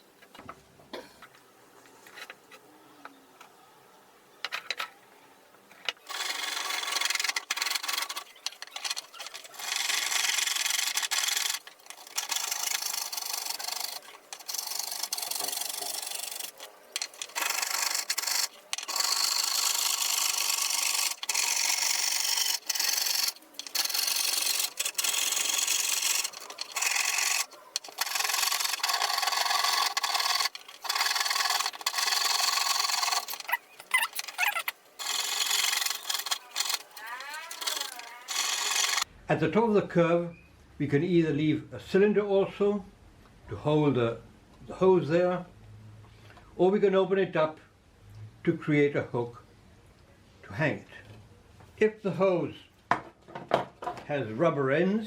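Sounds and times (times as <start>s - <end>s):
saw cutting plastic pipe: 6.1s - 39.0s.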